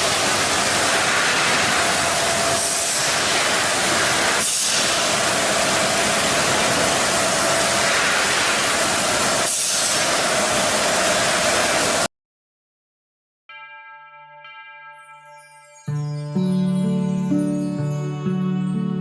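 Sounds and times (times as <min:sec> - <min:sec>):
loud steady hiss: 0:00.0 - 0:12.1.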